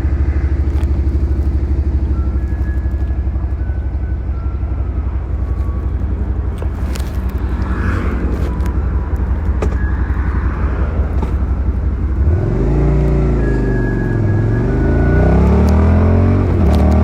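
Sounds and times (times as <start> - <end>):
motorcycle engine revving: 4.7 - 17.0.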